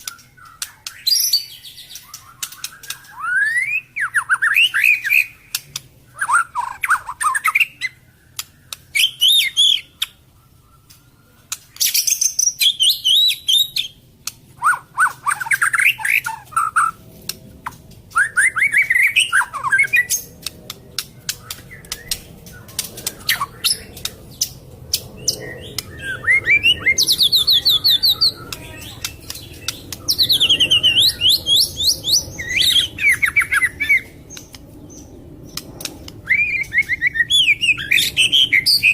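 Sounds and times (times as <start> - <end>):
bird singing whistled trills: 0.0 - 5.6, 6.2 - 14.0, 18.1 - 20.4, 21.0 - 35.6, 36.2 - 38.9
sharp clicks: 5.5 - 6.0, 8.4 - 8.9, 20.1 - 26.0, 28.4 - 30.3, 34.3 - 36.2.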